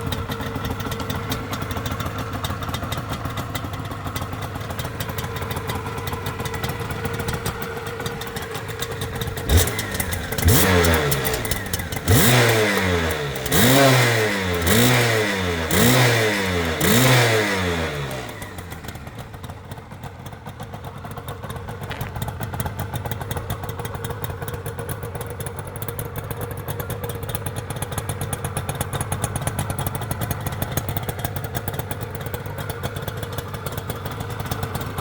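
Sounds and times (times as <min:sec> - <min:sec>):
motorcycle engine idling: 0:00.0 - 0:35.0
engine revving: 0:09.4 - 0:18.8.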